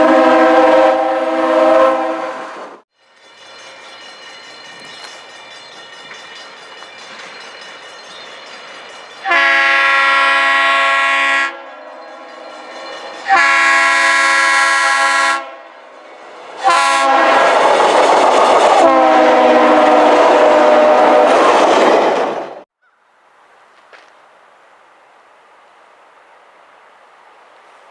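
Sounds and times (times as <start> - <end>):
locomotive horn blasts: 0.0 - 2.6, 9.2 - 12.5, 13.2 - 15.8, 16.6 - 17.6, 18.8 - 21.5
passing train running noise: 0.0 - 22.7.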